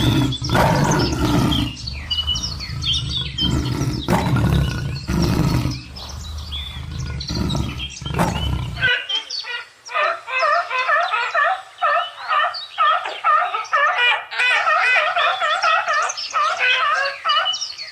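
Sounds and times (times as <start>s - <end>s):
lion roaring and growling: 0.0s - 8.9s.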